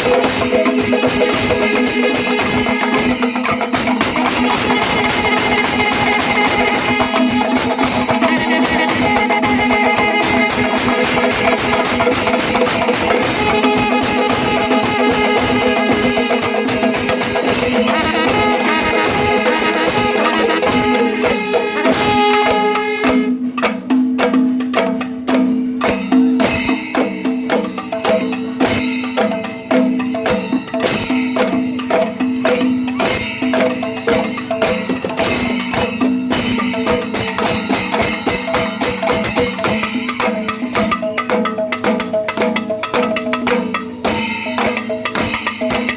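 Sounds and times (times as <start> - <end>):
fast drum strokes: 0.0 - 45.9
cymbal clashes: 43.1 - 45.9.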